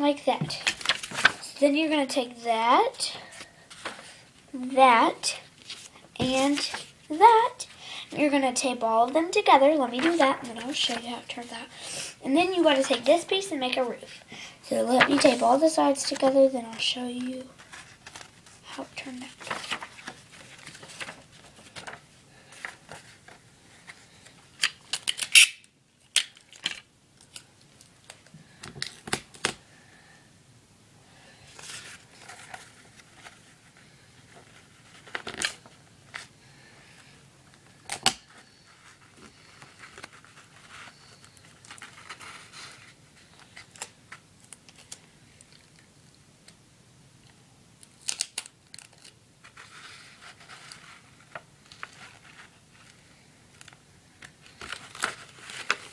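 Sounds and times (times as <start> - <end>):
paper rustling: 0.5 - 1.5, 3.2 - 4.2, 5.6 - 7.5, 9.7 - 25.4, 31.5 - 36.3, 37.9 - 45.7, 48.0 - 55.9
sticky tape ripping: 24.6 - 26.4.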